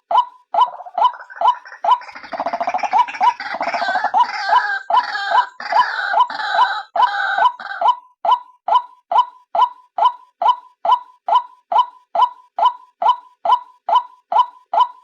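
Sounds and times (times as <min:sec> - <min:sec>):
bird calling hooked notes: 0:00.2 - 0:15.0
harsh bird chattering: 0:00.6 - 0:08.0.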